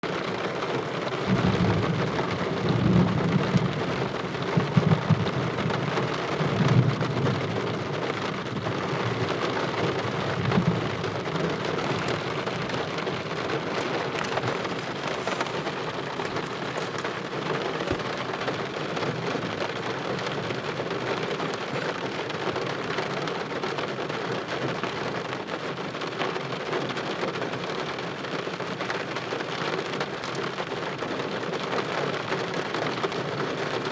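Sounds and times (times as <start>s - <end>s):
steady rain: 0.0s - 33.9s
low rolling thunder: 1.3s - 8.0s.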